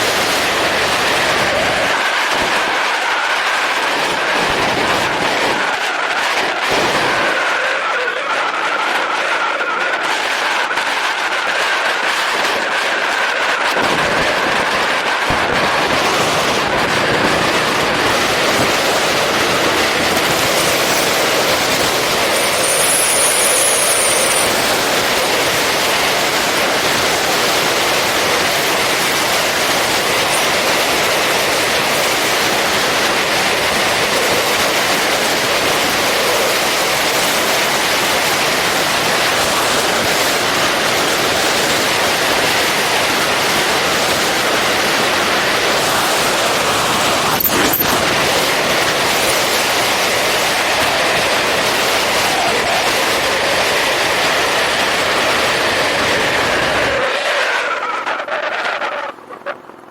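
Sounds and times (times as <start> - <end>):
wind and road noise on motorcycle: 0.0 - 59.9
faint high whistle: 20.4 - 25.1.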